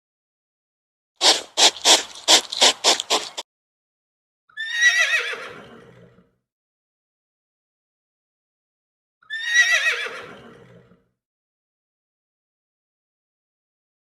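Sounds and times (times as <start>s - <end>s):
short rough bursts: 1.2s - 3.4s.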